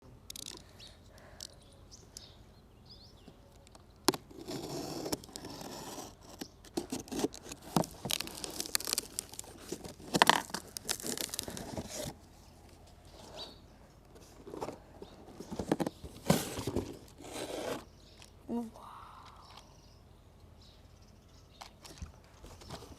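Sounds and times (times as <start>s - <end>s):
packaging crinkling and tearing: 4.2s - 12.2s.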